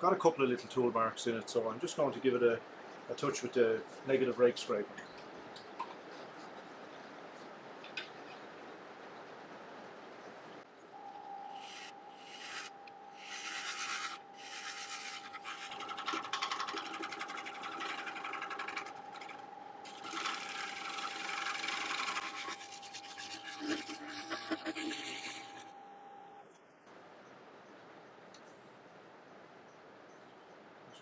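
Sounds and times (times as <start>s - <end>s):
wood lathe whine: 10.8s - 26.4s
scraper scraping wooden bowl: 11.6s - 25.7s.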